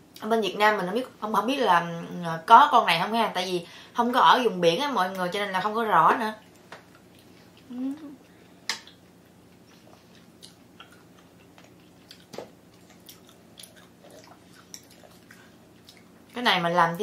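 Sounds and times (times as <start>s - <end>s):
person chewing with wet mouth sounds: 6.4s - 16.4s.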